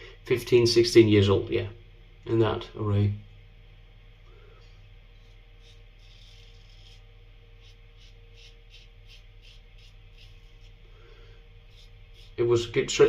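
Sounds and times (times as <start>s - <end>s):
razor scraping stubble: 5.1s - 10.8s, 11.6s - 12.7s.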